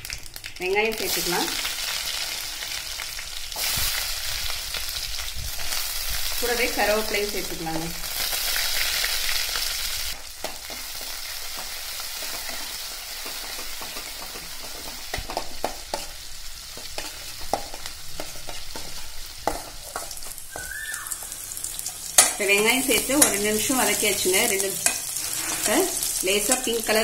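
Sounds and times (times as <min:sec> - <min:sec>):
shallots sizzling in hot oil: 0:00.0 - 0:27.0
spatula scraping metal pan: 0:24.8 - 0:26.1.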